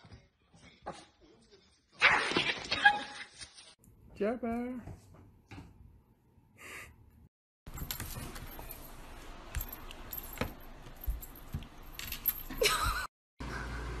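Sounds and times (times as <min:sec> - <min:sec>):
metal objects jangling on table: 0:07.7 - 0:12.9.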